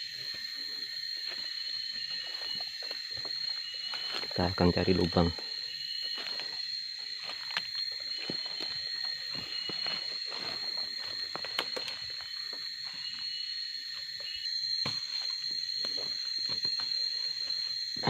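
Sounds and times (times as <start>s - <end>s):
insect chorus drone: 0.0s - 18.0s
footsteps in undergrowth: 0.2s - 18.0s
rustling undergrowth: 5.5s - 14.4s.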